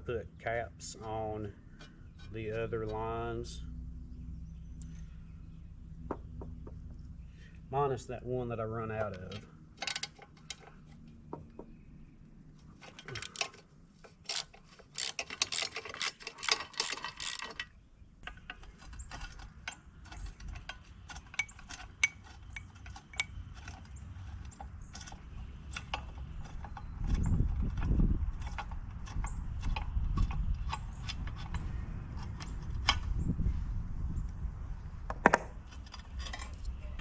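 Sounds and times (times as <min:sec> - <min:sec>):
ratchet wrench clicking: 0:14.3 - 0:17.7.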